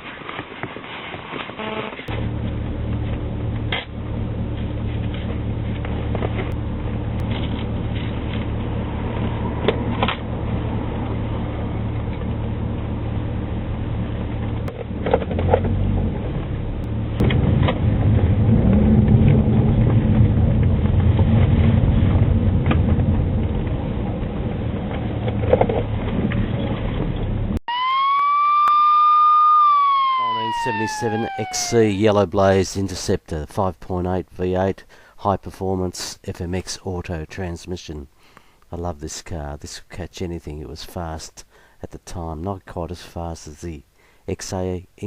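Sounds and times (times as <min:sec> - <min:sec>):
car engine running: 0:02.1 - 0:27.6.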